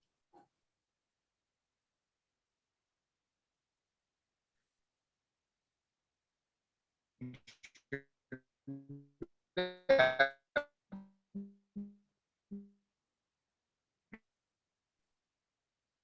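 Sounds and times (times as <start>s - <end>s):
keyboard-like melody: 8.7s - 12.7s.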